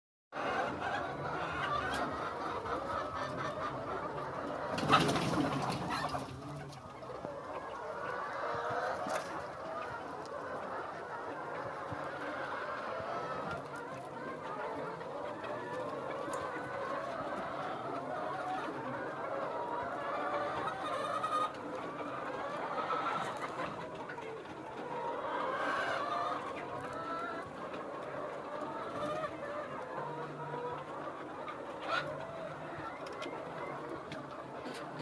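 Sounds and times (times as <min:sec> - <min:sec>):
chickens clucking: 0:00.4 - 0:35.0.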